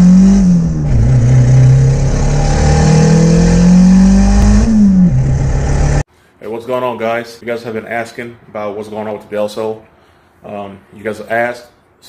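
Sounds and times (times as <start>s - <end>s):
car engine accelerating hard: 0.0s - 6.0s.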